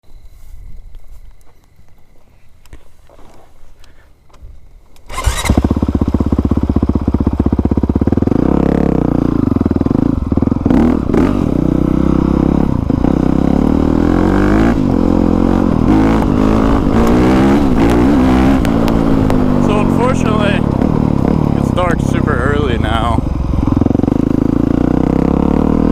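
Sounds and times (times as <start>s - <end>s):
motorcycle engine revving: 5.1s - 25.9s.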